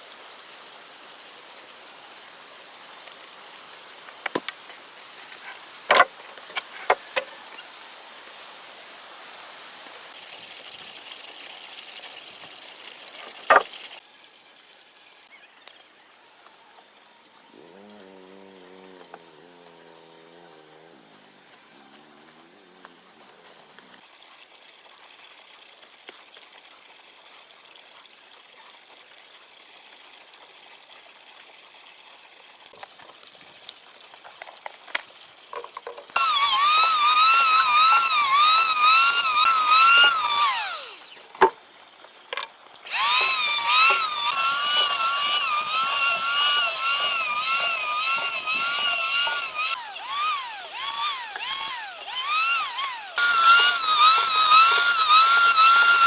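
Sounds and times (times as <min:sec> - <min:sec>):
chainsaw cutting wood: 0:05.3 - 0:07.6, 0:13.5 - 0:13.7, 0:36.2 - 0:41.5, 0:42.8 - 0:56.0.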